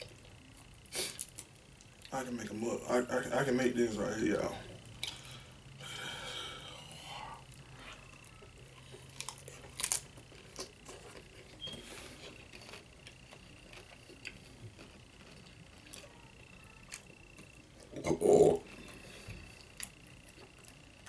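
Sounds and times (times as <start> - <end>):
chewing crisp chips: 8.2 - 21.0.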